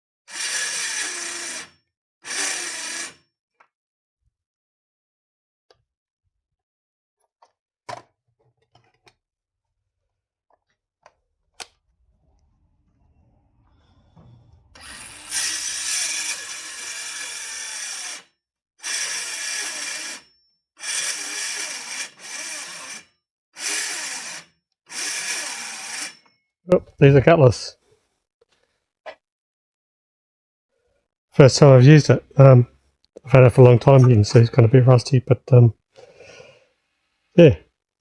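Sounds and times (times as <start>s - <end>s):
circular saw cutting plywood: 0.3s - 1.7s, 2.3s - 3.2s, 12.8s - 26.3s.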